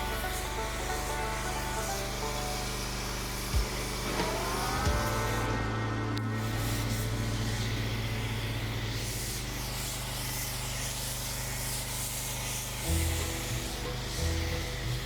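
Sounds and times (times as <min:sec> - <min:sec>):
foam cannon spraying hiss: 0:00.0 - 0:15.0
pressure washer hum: 0:00.0 - 0:15.0.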